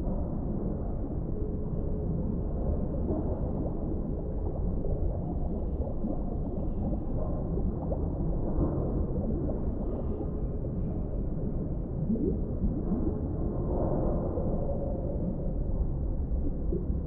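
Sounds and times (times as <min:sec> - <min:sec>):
underwater crackles and gurgles: 0:00.0 - 0:17.0
underwater rumble: 0:00.0 - 0:17.0.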